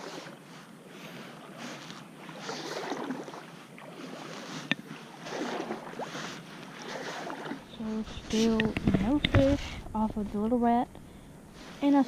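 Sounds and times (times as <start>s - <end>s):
kayak paddle splashing water: 1.1s - 10.3s.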